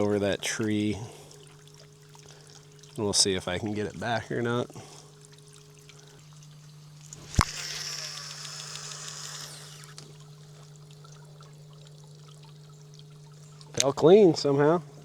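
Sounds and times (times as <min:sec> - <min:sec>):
steady low hum: 0:00.0 - 0:15.0
line hissing off spinning spool: 0:06.9 - 0:10.7
fishing reel click: 0:07.2 - 0:10.1.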